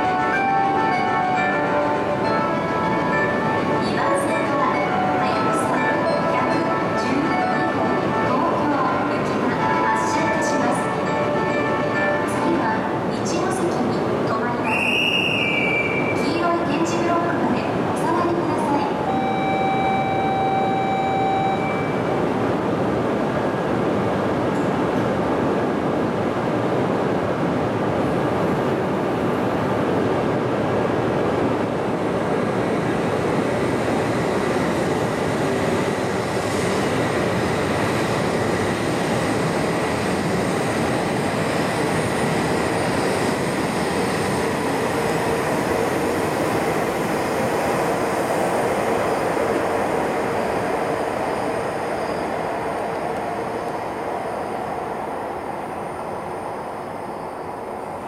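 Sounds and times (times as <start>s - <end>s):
steady tone: 19.1s - 22.4s.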